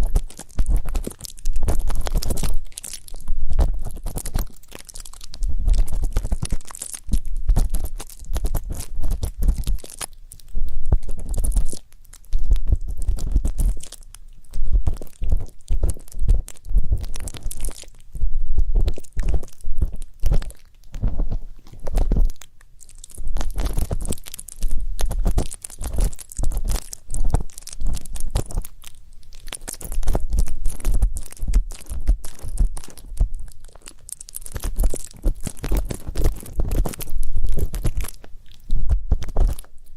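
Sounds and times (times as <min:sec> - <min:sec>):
ear pick scratching microphone: 0:00.0 - 0:22.4, 0:23.1 - 0:28.8, 0:29.5 - 0:39.8
low rumble: 0:18.2 - 0:20.0.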